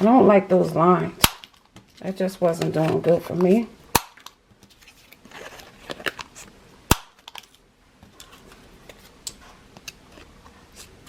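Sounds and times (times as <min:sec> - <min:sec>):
paper rustling: 0:04.6 - 0:06.5.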